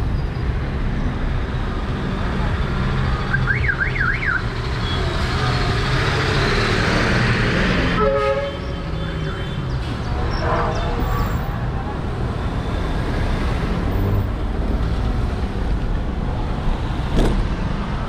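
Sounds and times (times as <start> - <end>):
traffic rumble: 0.0 - 18.0
car alarm chirp: 3.3 - 4.4
vehicle horn: 8.0 - 8.8, 10.3 - 11.4.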